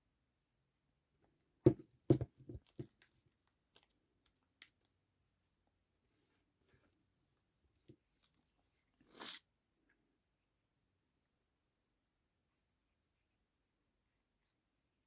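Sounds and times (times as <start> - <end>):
sharp knocks on a tabletop: 1.7 - 2.6.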